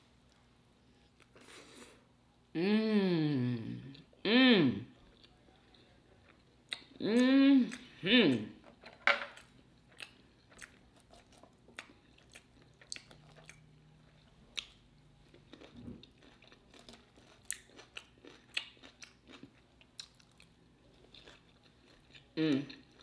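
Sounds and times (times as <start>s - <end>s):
chewing food: 9.3s - 23.0s.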